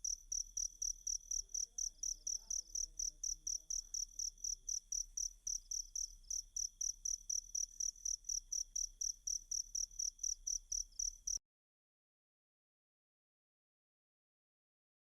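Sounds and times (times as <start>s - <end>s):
cricket chirping: 0.0s - 11.4s.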